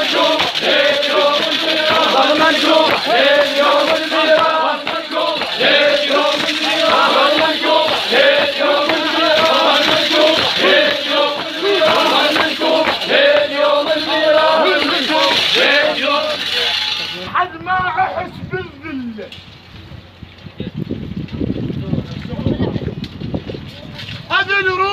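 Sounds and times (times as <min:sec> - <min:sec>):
crowd of men chanting: 0:00.0 - 0:16.8
lead chanter: 0:00.0 - 0:17.3.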